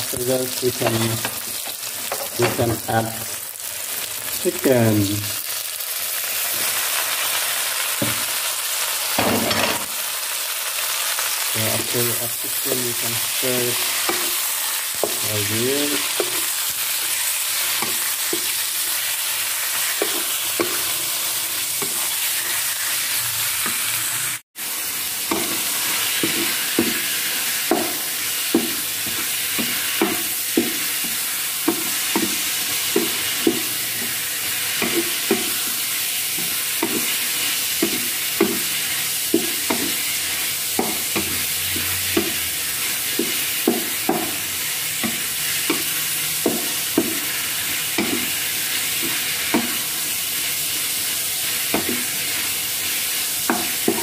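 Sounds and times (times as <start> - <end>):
chicken sizzling in hot oil: 0.0 - 54.0
wooden spatula scraping and tapping pan: 19.8 - 21.0, 25.3 - 44.4, 45.0 - 49.8, 51.6 - 52.1.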